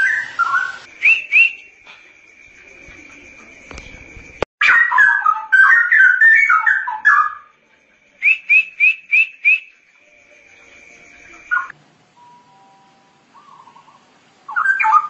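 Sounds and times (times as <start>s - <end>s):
short rising whistled notes: 0.0s - 1.7s
bird singing bubbling whistles: 0.0s - 1.8s, 4.7s - 7.5s, 8.2s - 9.9s, 11.1s - 11.7s, 13.3s - 15.0s
faint steady high tone: 6.2s - 15.0s.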